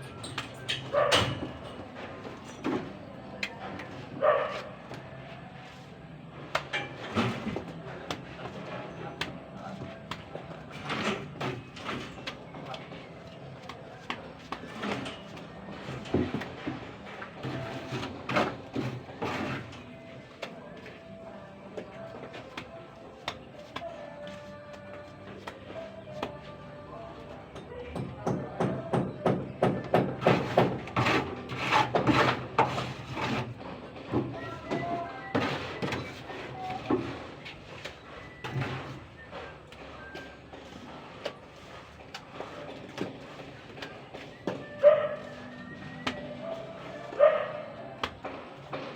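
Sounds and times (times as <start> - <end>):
knocks clicks and scrapes: 27.9 - 44.6.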